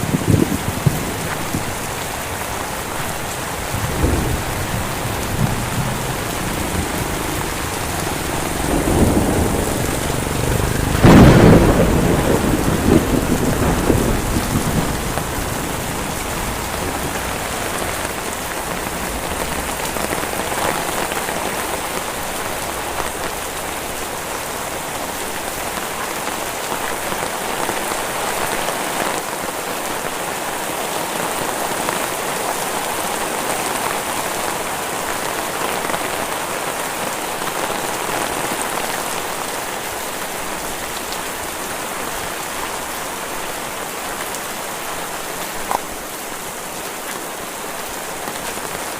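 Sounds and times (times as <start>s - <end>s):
thunder rumble: 0.0s - 23.5s
heavy rain: 0.0s - 48.9s.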